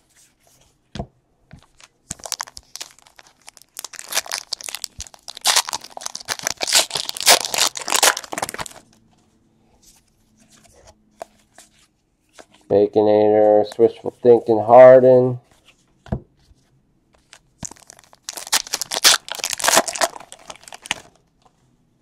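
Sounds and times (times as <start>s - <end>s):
foil wrapper tearing and crinkling: 2.1s - 8.8s, 17.6s - 21.1s.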